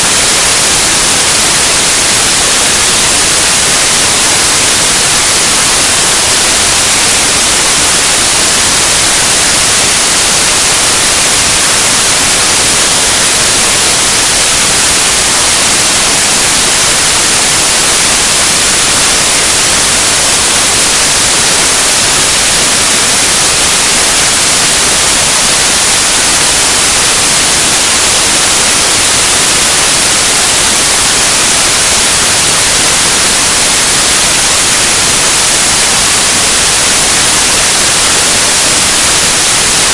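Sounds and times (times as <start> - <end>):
steady static hiss: 0.0 - 39.9.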